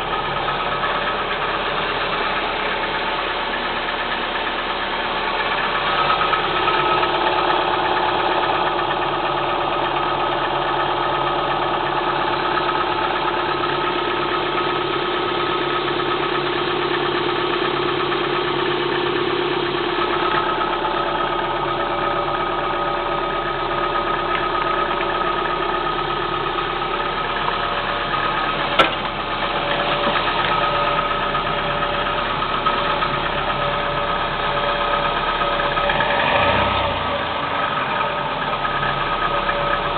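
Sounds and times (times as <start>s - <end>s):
car engine idling with rattling knock: 0.0s - 39.9s.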